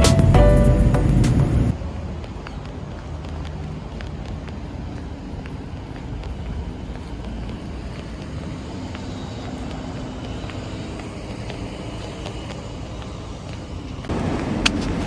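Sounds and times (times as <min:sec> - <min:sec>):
low vehicle rumble: 0:00.0 - 0:01.7.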